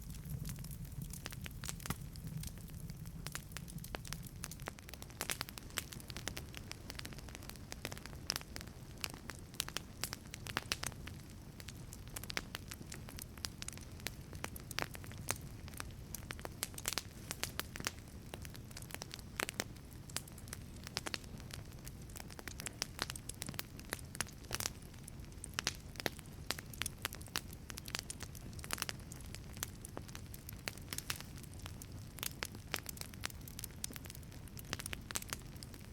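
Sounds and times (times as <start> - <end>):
low rumble of flames: 0.0 - 35.9
wood fire crackling and popping: 0.0 - 35.9.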